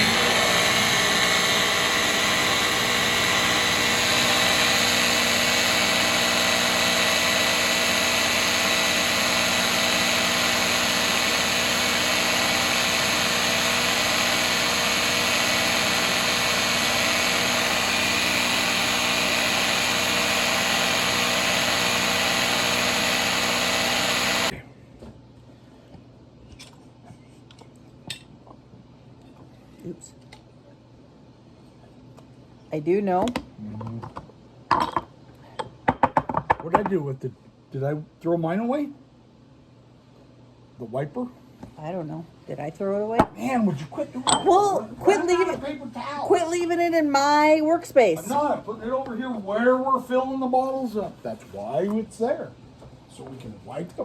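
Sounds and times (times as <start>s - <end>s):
electric chopper grinding: 0.0s - 24.5s.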